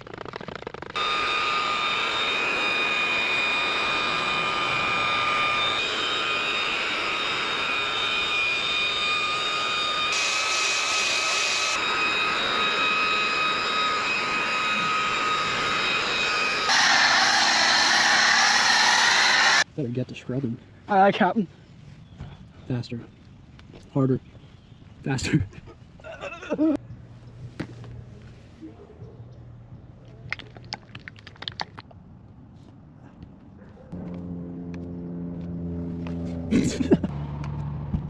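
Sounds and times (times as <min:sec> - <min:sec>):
machine whine: 0:00.0 - 0:19.7.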